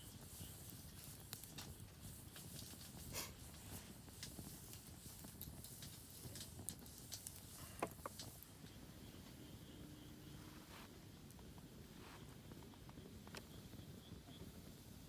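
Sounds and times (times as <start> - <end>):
campfire crackling and popping: 0.0 - 8.8.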